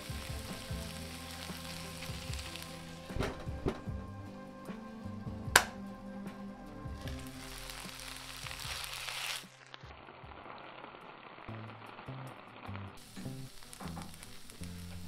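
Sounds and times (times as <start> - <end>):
vegetables sizzling in a frying pan: 0.0 - 3.6, 7.0 - 15.0
background music: 0.0 - 9.9, 11.5 - 15.0.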